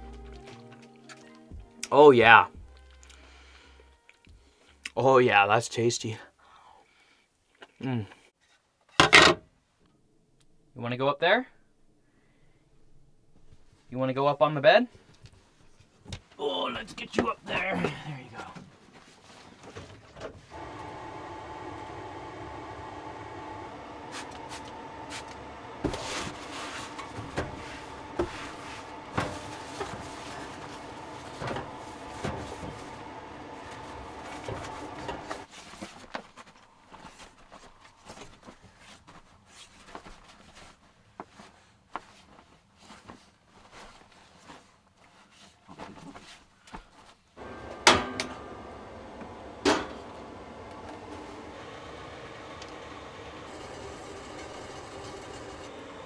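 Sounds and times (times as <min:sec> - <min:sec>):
steady hum with a whine: 0:20.5 - 0:35.5, 0:47.4 - 0:56.0.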